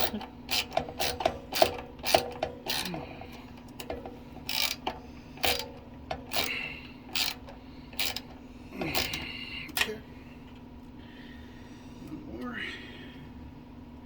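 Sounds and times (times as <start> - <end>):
hand tools driving screws: 0.0 - 2.9, 3.8 - 6.5, 7.1 - 7.4, 8.0 - 8.3
steady low hum: 0.0 - 14.0.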